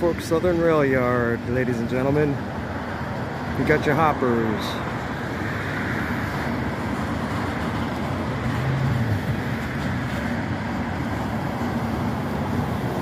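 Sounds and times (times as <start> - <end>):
freight train rolling past: 3.7 - 13.0.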